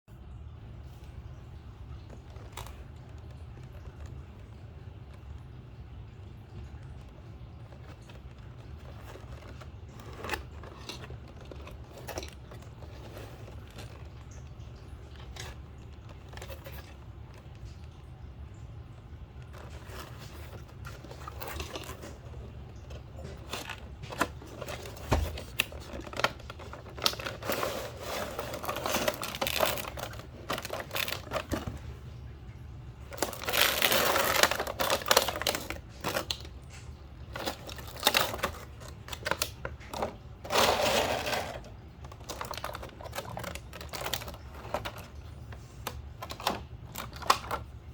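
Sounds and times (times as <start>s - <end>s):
rustling: 0.8s - 47.9s
packaging crinkling and tearing: 1.9s - 47.9s.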